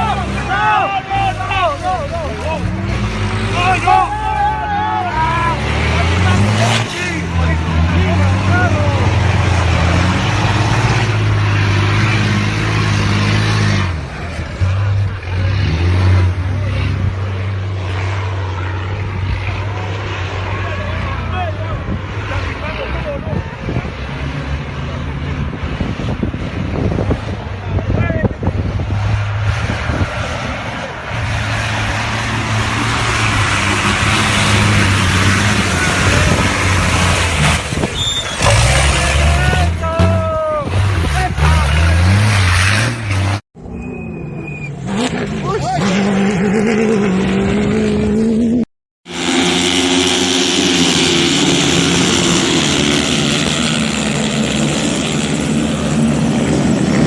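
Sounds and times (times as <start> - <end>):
rushing noise: 17.7 - 45.5.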